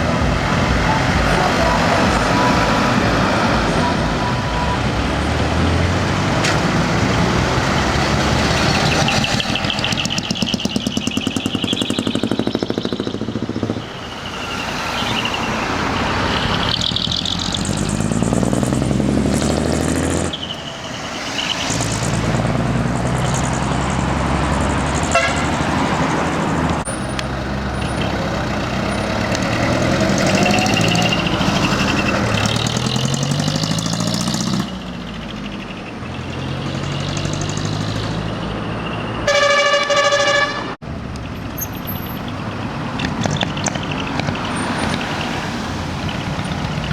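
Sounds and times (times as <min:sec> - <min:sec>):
diesel trucks driving past: 0:00.0 - 0:46.9
truck horn blast: 0:00.2 - 0:08.2, 0:25.0 - 0:26.0, 0:39.1 - 0:40.8.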